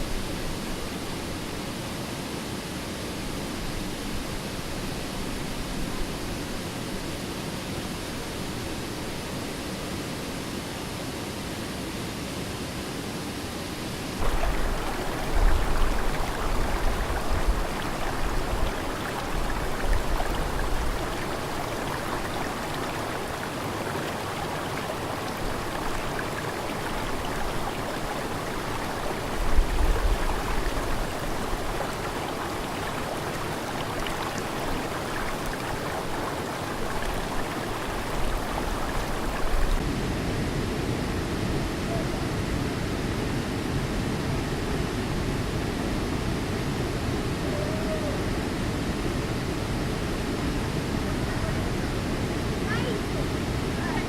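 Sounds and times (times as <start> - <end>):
waterfall rushing: 14.2 - 39.8.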